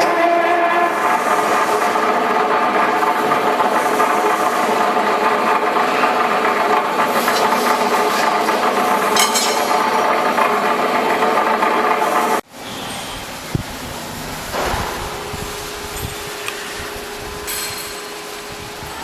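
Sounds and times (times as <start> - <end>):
machine hum with metallic rattle: 0.0 - 19.0.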